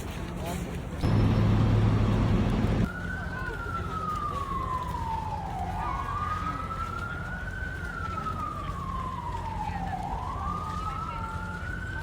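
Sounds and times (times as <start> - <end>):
low rumble: 1.0 - 2.9
siren wailing: 1.0 - 12.0.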